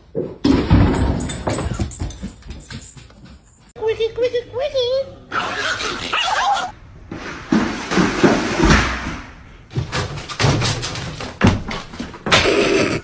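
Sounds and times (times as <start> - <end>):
sharp knocks and clatters: 7.1 - 12.6.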